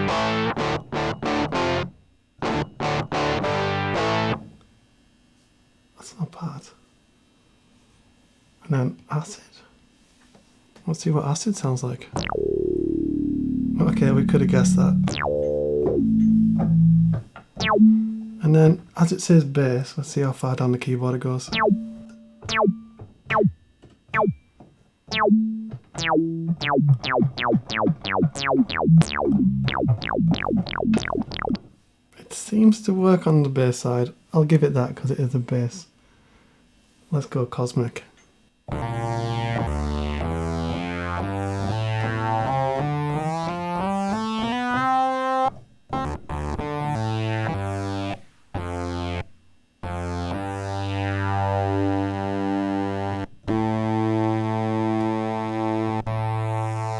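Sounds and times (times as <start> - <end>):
synth bass notes with filter sweep: 12.2 - 18.4, 21.5 - 24.4, 25.1 - 31.6, 38.8 - 44.7, 49.8 - 56.9.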